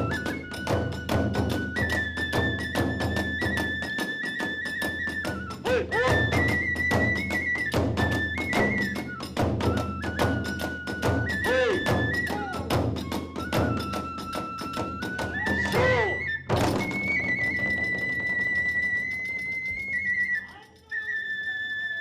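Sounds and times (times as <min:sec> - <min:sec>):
high bamboo flute: 0:00.0 - 0:22.0
rapid drum beats: 0:05.3 - 0:18.5.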